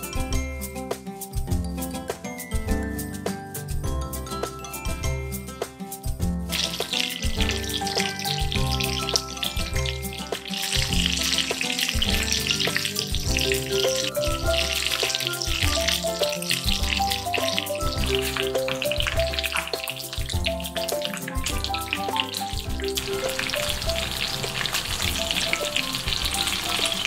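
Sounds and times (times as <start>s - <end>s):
background music with bass beat: 0.0s - 27.0s
chicken sizzling in a pan: 6.5s - 27.0s.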